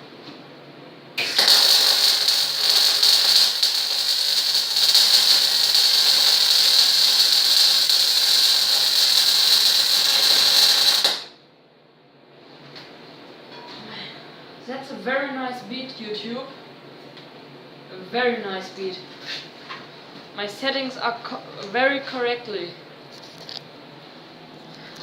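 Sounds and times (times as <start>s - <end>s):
welder crackling sizzle: 1.2s - 11.4s.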